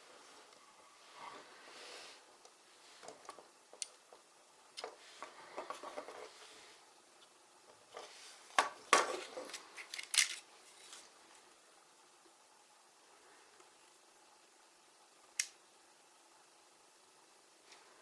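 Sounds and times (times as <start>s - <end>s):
plastic bricks clicking: 8.6s - 10.4s.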